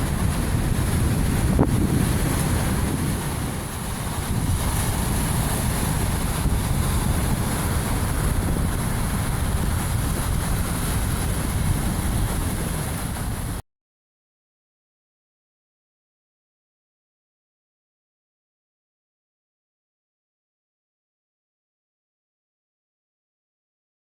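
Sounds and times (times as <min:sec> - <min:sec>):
sea surf on rocks: 0:00.0 - 0:13.6
wind buffeting microphone: 0:00.0 - 0:13.6.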